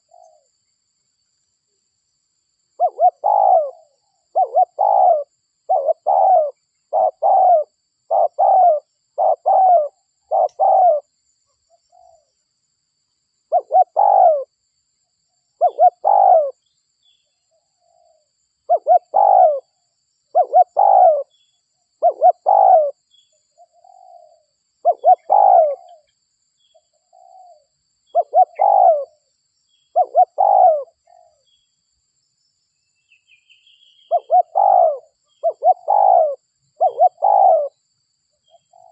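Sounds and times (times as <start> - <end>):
dove cooing: 0.0 - 0.5, 2.8 - 11.1, 13.5 - 14.5, 15.6 - 16.6, 17.8 - 21.4, 22.0 - 23.0, 23.6 - 26.1, 27.1 - 29.2, 29.9 - 31.4, 34.1 - 37.8, 38.5 - 38.9
small bird chirping: 0.0 - 1.5, 2.8 - 38.9.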